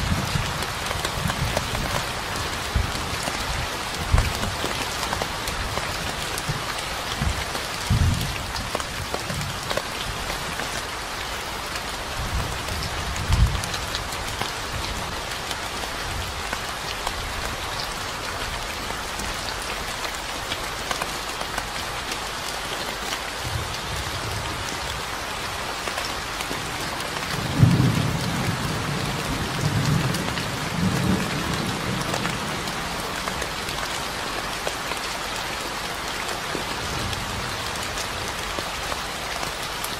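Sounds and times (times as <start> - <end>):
steady rain falling: 0.0 - 39.9
thunder rumbles: 7.2 - 9.6.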